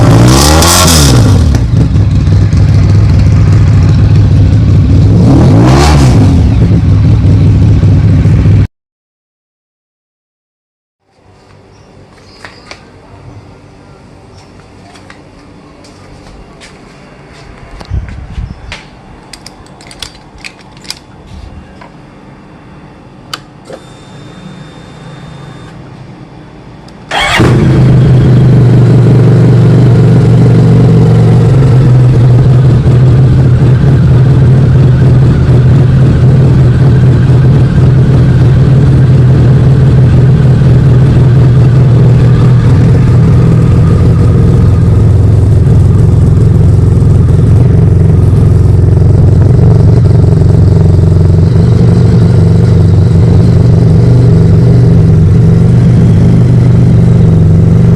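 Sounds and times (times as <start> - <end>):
motorcycle engine idling: 1.4 - 5.2, 6.4 - 8.6, 27.1 - 57.9.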